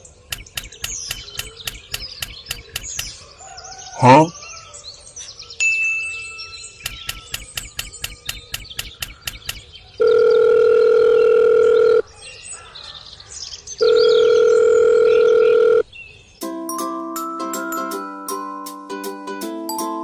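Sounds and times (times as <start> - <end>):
rapid clicking: 0.0 - 3.2, 6.8 - 9.6
birds chirping: 0.0 - 10.4
mallet percussion music: 16.7 - 20.0.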